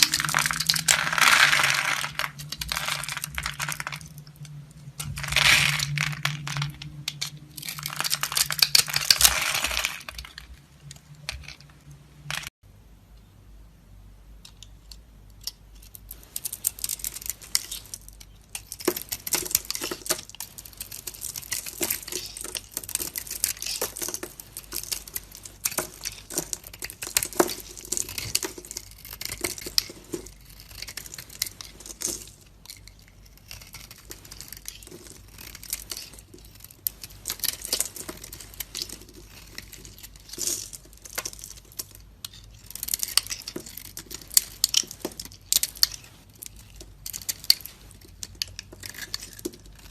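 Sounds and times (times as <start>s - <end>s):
knife scraping dry soap: 15.4s - 32.0s, 32.7s - 41.3s, 42.2s - 49.9s.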